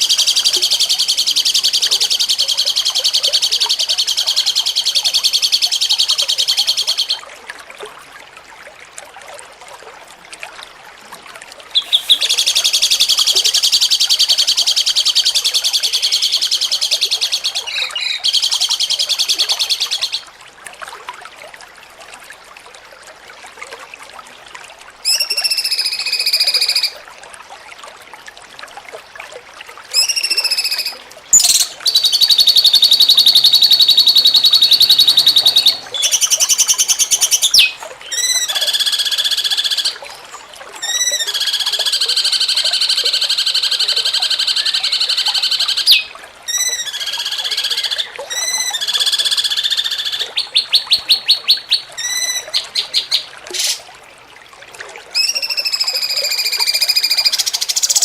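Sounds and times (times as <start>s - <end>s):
songbird whistled notes: 11.8s - 20.2s, 30.0s - 40.0s, 43.5s - 53.8s
songbird buzzing trills: 31.4s - 37.8s.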